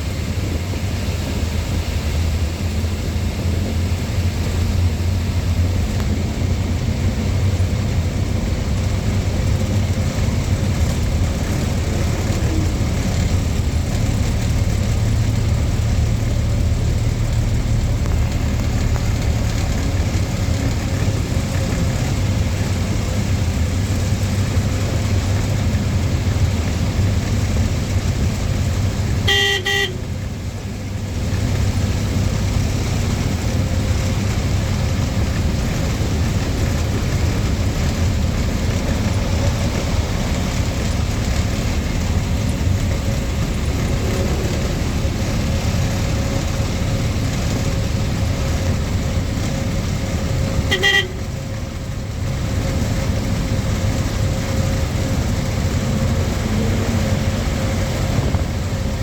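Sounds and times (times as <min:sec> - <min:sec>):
lorry engine and road noise: 0:00.0 - 0:59.0
short horn toot: 0:29.3 - 0:30.0, 0:50.7 - 0:51.3.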